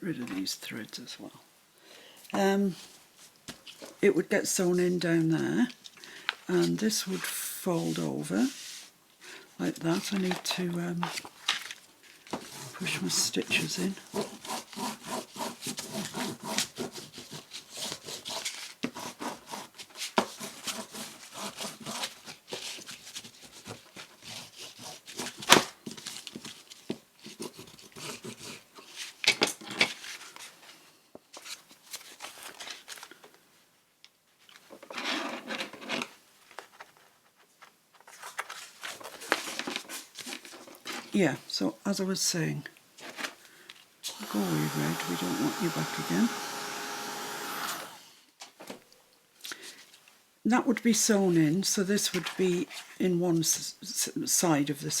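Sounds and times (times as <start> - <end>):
hands rustling paper: 9.8 - 33.2, 34.4 - 41.2.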